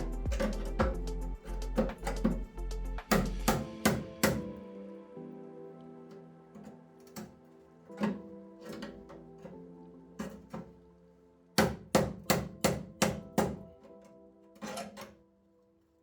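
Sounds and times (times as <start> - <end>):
hammer blows on sheet metal: 0.0 - 4.6, 11.6 - 13.7
background music: 0.0 - 16.0.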